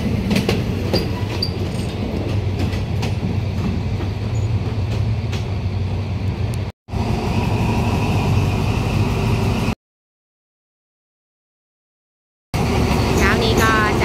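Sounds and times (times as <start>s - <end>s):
diesel locomotive engine droning: 0.0s - 9.8s, 12.6s - 14.0s
train coaches rolling on track: 0.0s - 9.8s, 12.6s - 14.0s.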